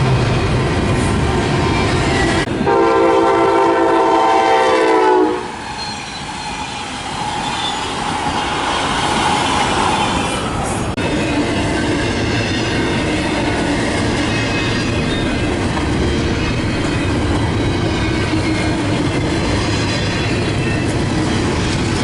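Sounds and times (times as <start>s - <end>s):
train wheel and rail noise: 0.0s - 22.0s
locomotive air horn blast: 2.6s - 5.6s.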